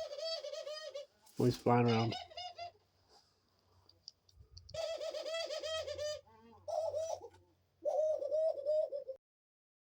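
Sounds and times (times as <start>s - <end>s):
dove calling: 0.0s - 2.8s, 4.7s - 9.2s.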